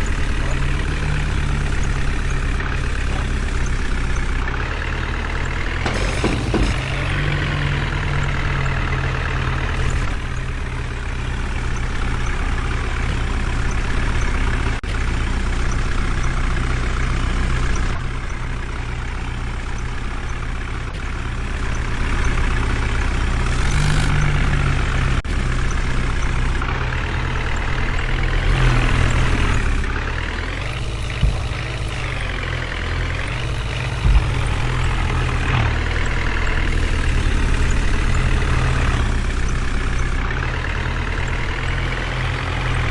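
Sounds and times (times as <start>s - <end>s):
heavy diesel engine revving: 0.0s - 42.9s.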